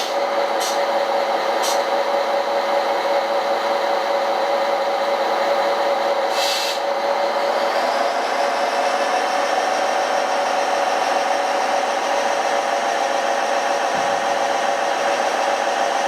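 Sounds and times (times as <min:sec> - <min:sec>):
short hisses: 0:06.3 - 0:06.9.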